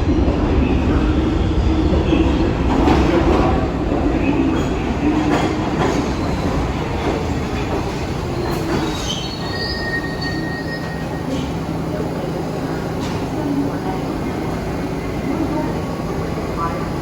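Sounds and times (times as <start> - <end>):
subway train rumbling: 0.0 - 17.0
high wheel squeal: 6.0 - 17.0.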